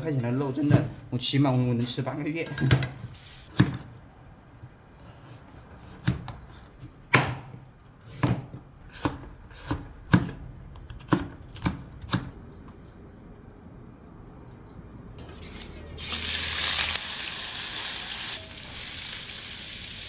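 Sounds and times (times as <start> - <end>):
knife chopping on cutting board: 7.1 - 12.3.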